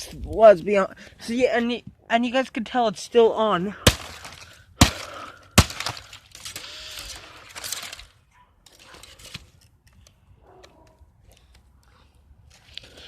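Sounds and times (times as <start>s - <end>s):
debris scraping and rustling: 3.8s - 10.1s
broken parts clicking and rattling: 3.8s - 10.2s.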